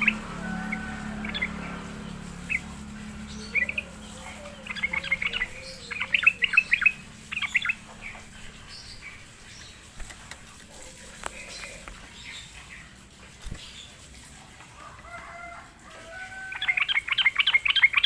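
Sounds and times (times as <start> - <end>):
bird chirping sharp notes: 0.0 - 10.0.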